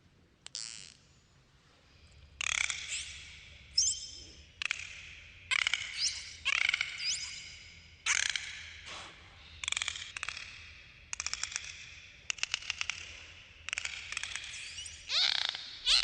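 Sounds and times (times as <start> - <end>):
dolphins whistling: 14.4 - 16.0.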